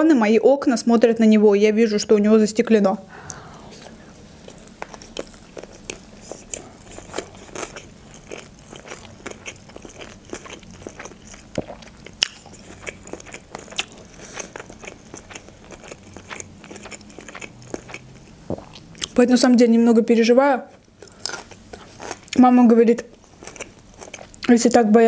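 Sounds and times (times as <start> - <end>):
person chewing food: 3.2 - 19.2, 20.7 - 22.4, 23.1 - 24.5.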